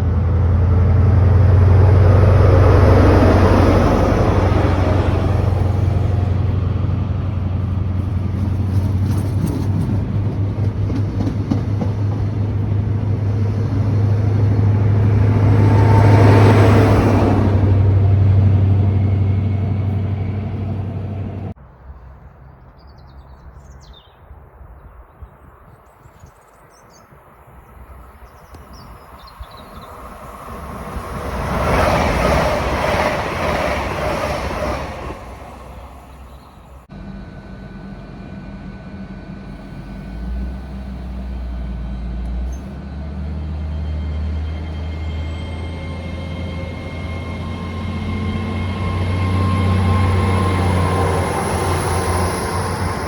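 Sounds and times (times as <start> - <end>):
loud train: 0.0 - 22.4, 27.0 - 53.0
train passing: 0.0 - 22.4, 27.1 - 53.0
train engine humming low: 0.0 - 23.1, 27.0 - 53.0
birds chirping: 22.4 - 30.5.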